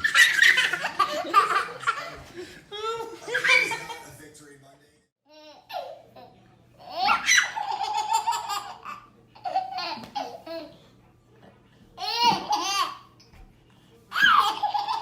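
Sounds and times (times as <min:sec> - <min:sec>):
baby laughing: 0:00.0 - 0:02.2, 0:03.0 - 0:04.2, 0:05.3 - 0:10.8, 0:12.0 - 0:13.1, 0:14.1 - 0:15.0.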